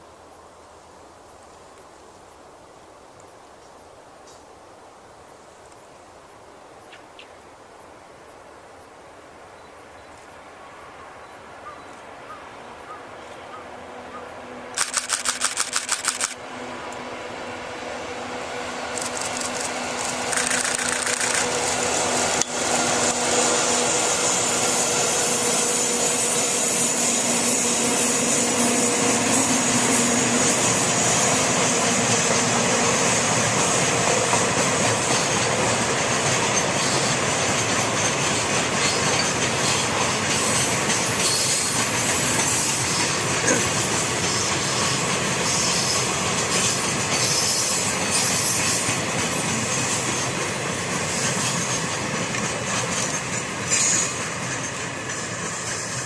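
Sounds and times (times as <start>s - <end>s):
locomotive hum: 12.0s - 56.0s
train wheels clattering on rail joints: 18.9s - 22.6s, 24.3s - 56.0s.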